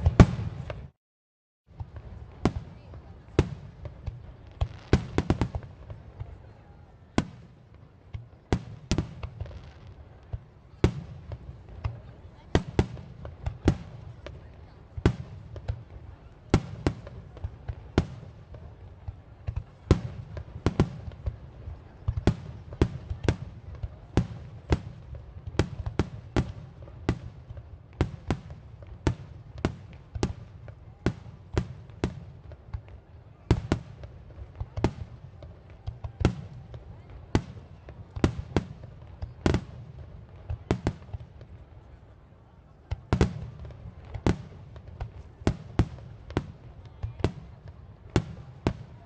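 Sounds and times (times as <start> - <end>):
fireworks bangs: 0.0 - 0.9.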